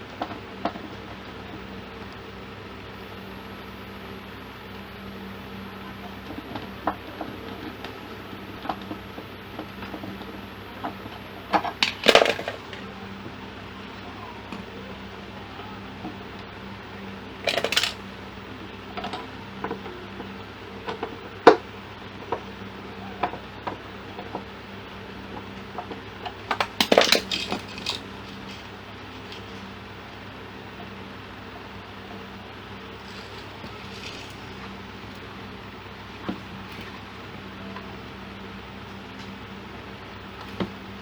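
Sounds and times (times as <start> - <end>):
steady low hum: 0.0 - 41.0
small metal objects clinking: 26.6 - 28.7, 33.0 - 34.6.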